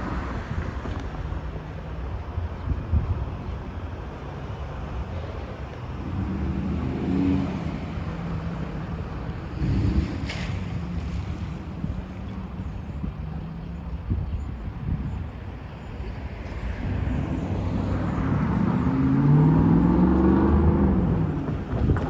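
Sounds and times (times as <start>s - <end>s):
traffic rumble: 0.0s - 22.0s
bus engine accelerating: 16.1s - 22.0s.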